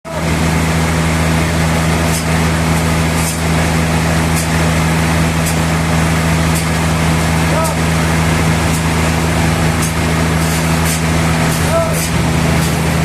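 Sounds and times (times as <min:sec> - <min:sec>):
sawmill machinery humming: 0:00.1 - 0:13.0.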